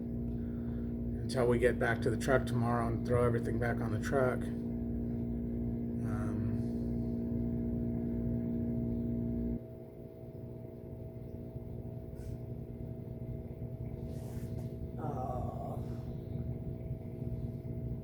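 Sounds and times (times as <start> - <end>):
machine hum over low rumble: 0.0 - 18.0.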